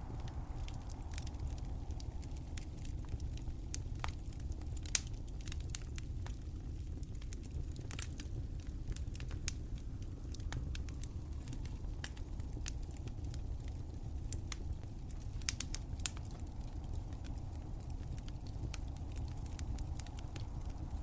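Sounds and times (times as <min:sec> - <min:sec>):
low rumble: 0:00.0 - 0:06.9
wood fire crackling: 0:00.0 - 0:21.0.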